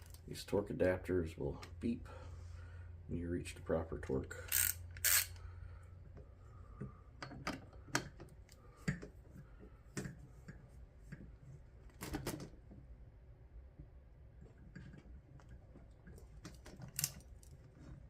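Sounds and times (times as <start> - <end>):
wrench clicking and tapping: 4.5 - 5.4.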